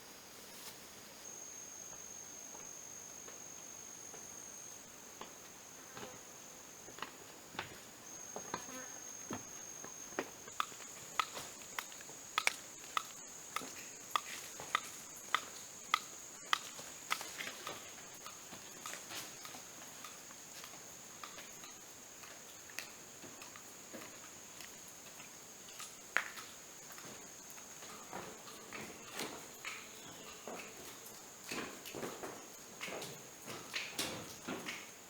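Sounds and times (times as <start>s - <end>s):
insects droning: 0.0s - 35.0s
sharp clicks: 10.5s - 20.2s.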